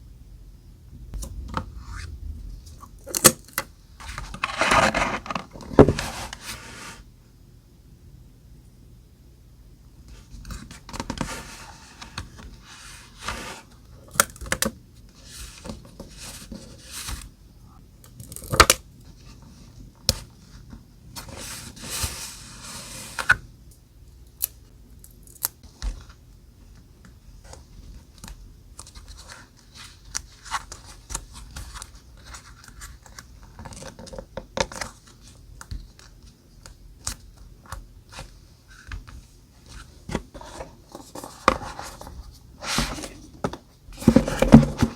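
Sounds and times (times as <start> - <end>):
paper and stickers scraped: 4.3 - 5.4.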